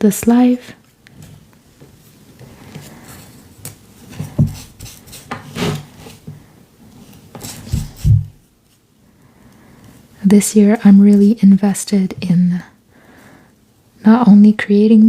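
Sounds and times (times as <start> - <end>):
paper rubbing and rustling: 7.0 - 8.8.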